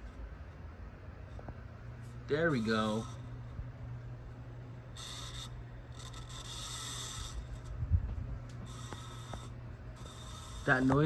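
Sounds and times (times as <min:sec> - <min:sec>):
ceiling fan motor hum: 0:00.0 - 0:11.0
rubbing rasping noise: 0:05.0 - 0:07.8, 0:08.6 - 0:11.0.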